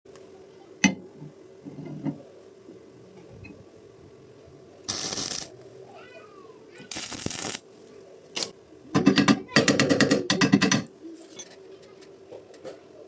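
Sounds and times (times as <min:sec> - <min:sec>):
arc welding crackle: 0:04.8 - 0:05.8, 0:06.9 - 0:08.6.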